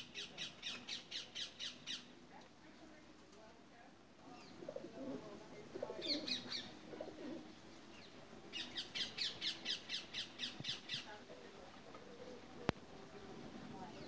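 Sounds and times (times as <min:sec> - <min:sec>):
low wavering bird calls: 0:06.0 - 0:07.4, 0:08.0 - 0:11.2.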